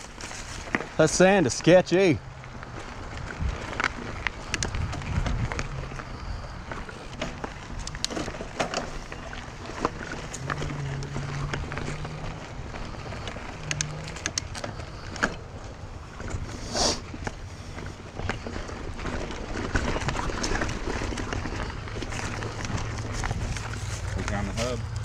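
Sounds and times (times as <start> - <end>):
bike clicks and rattles: 0.0 - 25.0
bike tyre noise on dirt: 0.0 - 25.0
wind on microphone: 3.1 - 6.9.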